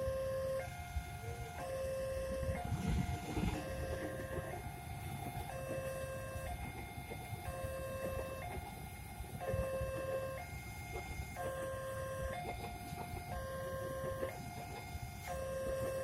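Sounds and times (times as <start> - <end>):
level crossing two-tone alarm: 0.0 - 16.0
wind and traffic rumble: 0.0 - 16.0.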